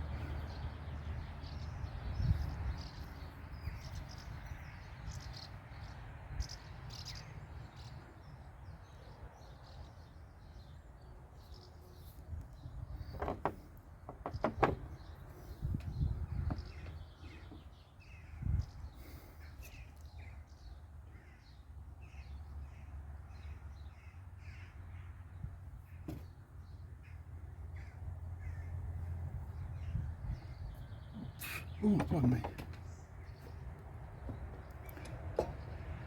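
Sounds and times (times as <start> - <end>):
dull knocks: 13.1 - 15.0.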